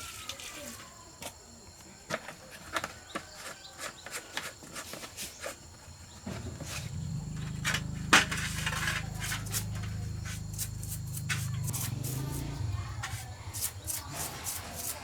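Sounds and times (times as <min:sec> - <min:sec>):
low machine hum: 0:06.4 - 0:13.5.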